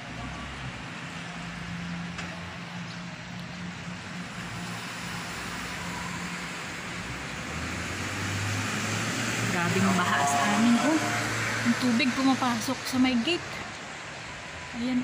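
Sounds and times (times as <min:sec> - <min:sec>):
rain falling on water: 0:11.8 - 0:15.0.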